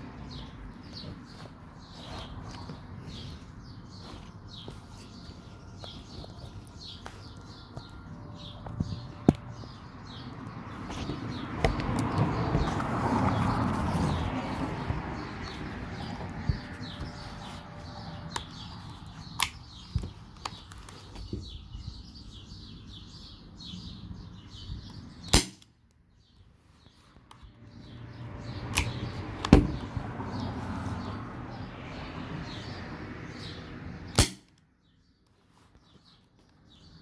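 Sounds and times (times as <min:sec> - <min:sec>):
birds chirping faintly: 0:00.0 - 0:37.0
airsoft revolver shots: 0:25.3 - 0:25.7, 0:34.2 - 0:34.5.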